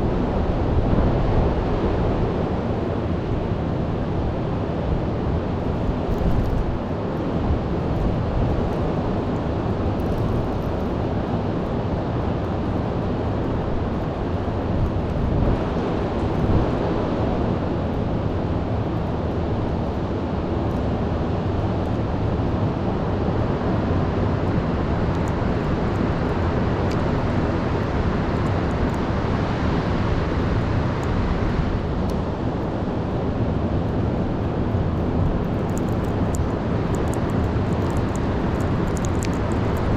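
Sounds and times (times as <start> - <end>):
wind buffeting microphone: 0.0 - 19.1.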